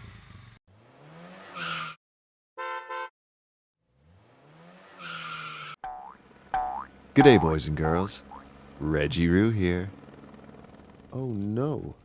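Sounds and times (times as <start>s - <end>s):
vehicle engine revving: 0.6s - 2.0s, 3.8s - 11.1s
horn beeps: 7.2s - 7.6s.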